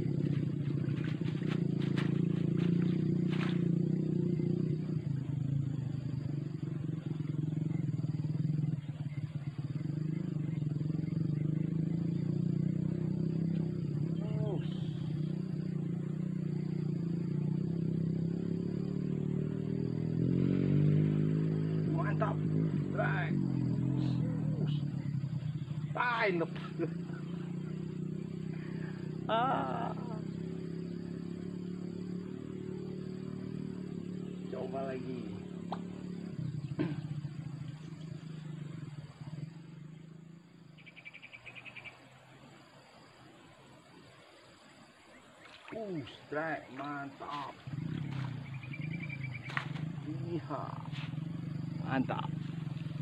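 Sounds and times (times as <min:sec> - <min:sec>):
low drone: 0:00.0 - 0:12.2
cricket trilling: 0:00.0 - 0:53.0
small engine humming: 0:00.0 - 0:53.0.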